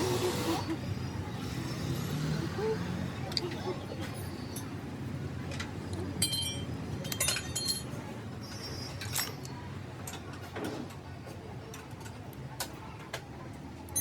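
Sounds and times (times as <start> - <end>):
metal tools clinking: 5.5 - 9.5.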